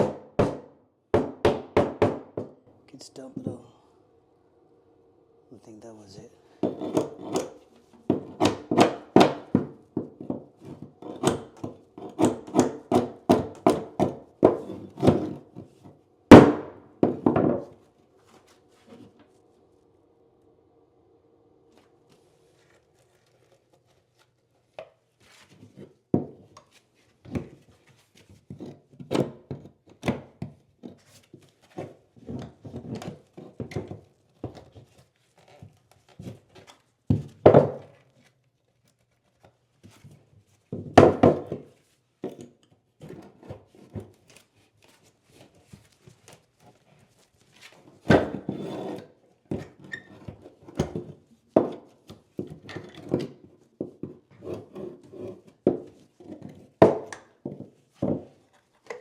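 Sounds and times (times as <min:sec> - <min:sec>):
hand tools knocking on wood: 0:00.0 - 0:02.6, 0:06.6 - 0:15.6, 0:16.3 - 0:17.7, 0:40.8 - 0:41.7.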